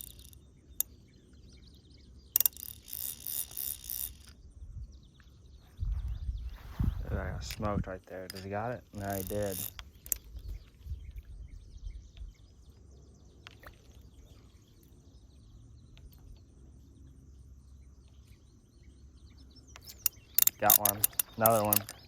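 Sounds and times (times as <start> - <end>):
birds: 0.0 - 22.0
insects: 0.0 - 22.0
faint ticks: 19.7 - 22.0.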